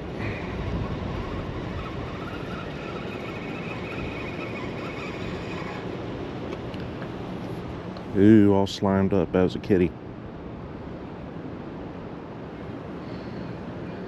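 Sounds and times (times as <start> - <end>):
fishing reel whirring: 0.0 - 6.6
wind: 0.0 - 14.0.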